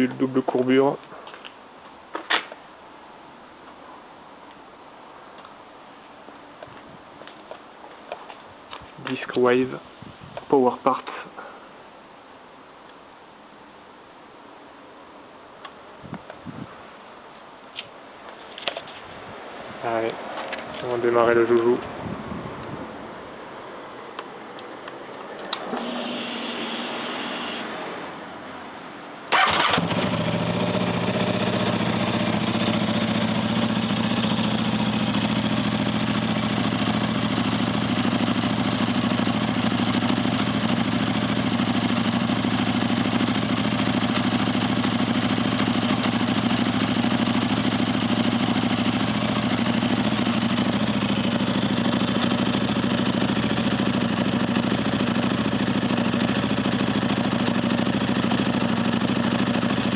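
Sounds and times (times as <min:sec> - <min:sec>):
motorcycle engine starting and idling: 0:25.4 - 0:27.8, 0:29.3 - 0:59.9.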